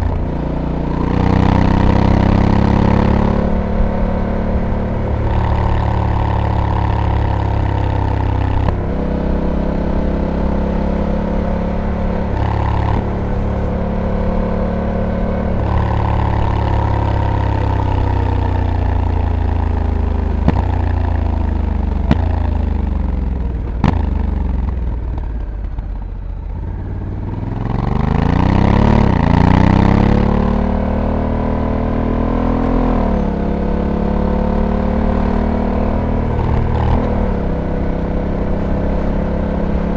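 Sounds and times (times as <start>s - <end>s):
motorcycle engine changing gears: 0.0s - 39.9s.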